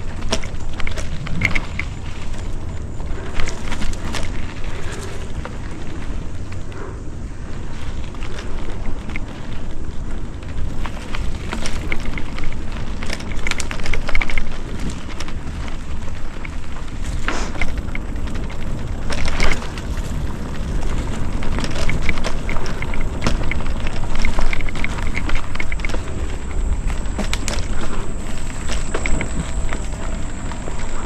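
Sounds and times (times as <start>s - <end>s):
bike rattling: 0.0s - 31.0s
bike tyres crunching over twigs: 0.0s - 31.0s
wind rumble on microphone: 0.0s - 31.0s.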